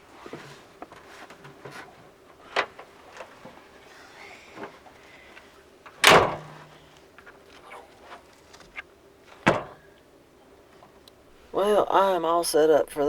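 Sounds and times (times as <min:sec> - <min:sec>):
faint knocks and rustling of gear: 0:00.0 - 0:11.4
loud slam: 0:06.0 - 0:06.7.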